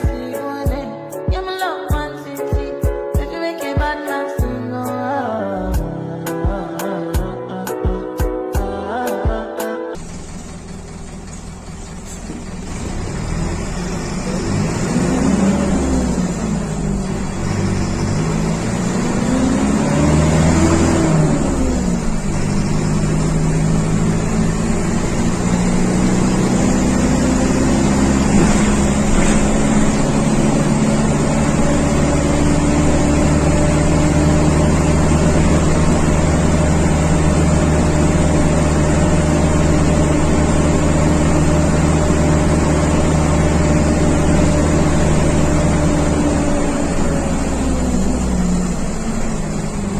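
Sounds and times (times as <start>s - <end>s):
bus diesel engine running: 10.0s - 49.9s.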